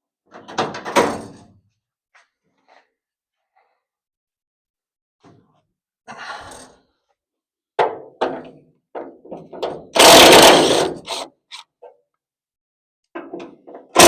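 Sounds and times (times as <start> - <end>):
loud noisy burst: 10.0 - 11.2.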